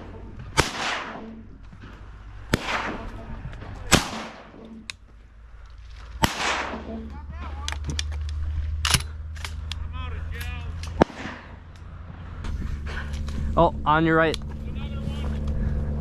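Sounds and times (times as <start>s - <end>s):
shotgun blasts echoing: 0.0s - 4.7s, 6.2s - 7.1s, 10.9s - 11.7s.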